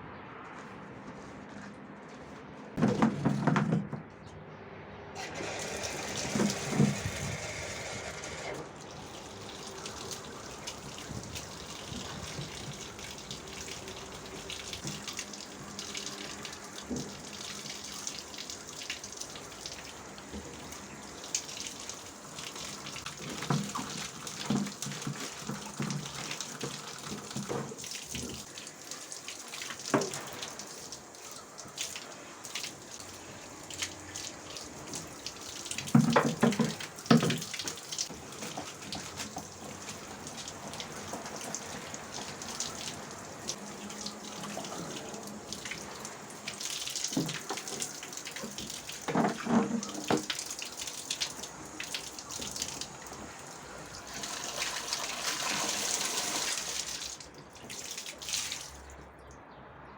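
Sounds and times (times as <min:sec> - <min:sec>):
loud knocks and clatter: 0:02.8 - 0:04.1
water running and splashing: 0:05.4 - 0:59.2.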